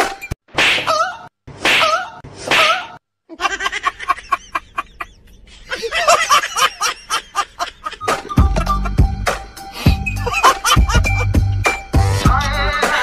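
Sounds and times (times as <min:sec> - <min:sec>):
women giggling and laughing: 0:03.3 - 0:09.0, 0:09.9 - 0:11.4.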